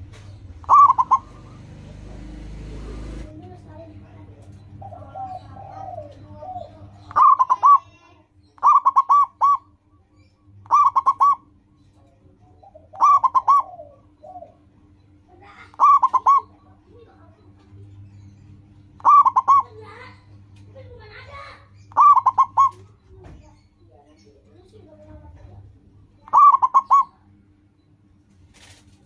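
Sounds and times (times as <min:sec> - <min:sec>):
dove cooing: 0:00.0 - 0:09.7, 0:10.6 - 0:11.6, 0:12.4 - 0:17.8, 0:18.5 - 0:23.4, 0:24.6 - 0:27.4.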